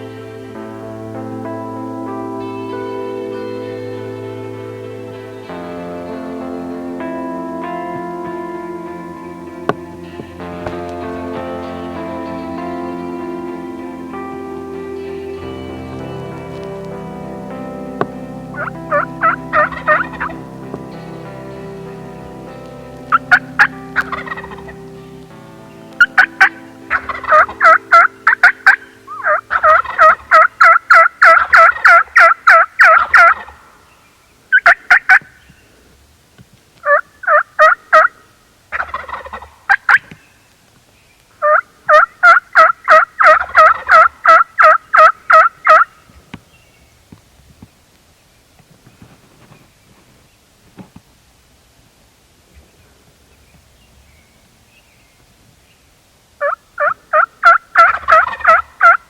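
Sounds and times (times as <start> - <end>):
background music: 0.0 - 34.0, 41.4 - 45.9, 56.4 - 59.0
turkey yelping: 18.6 - 20.4, 26.0 - 33.6, 34.5 - 35.3, 36.8 - 38.1, 38.7 - 40.0, 41.4 - 45.9, 56.4 - 59.0.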